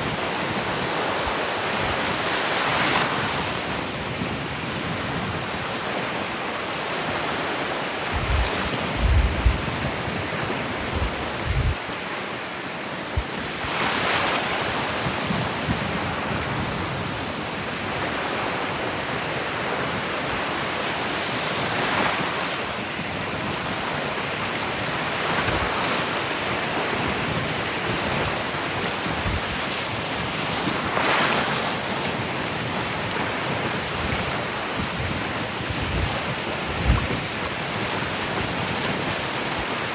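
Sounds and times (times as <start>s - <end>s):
ocean surf washing on beach: 0.0s - 39.9s
wind buffeting microphone: 6.8s - 12.1s, 32.2s - 39.9s.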